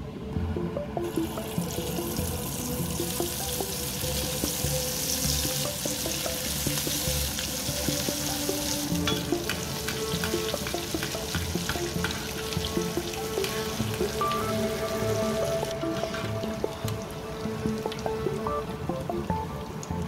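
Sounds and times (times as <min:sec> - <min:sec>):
background music: 0:00.0 - 0:20.0
potatoes sizzling in hot oil: 0:01.2 - 0:16.3.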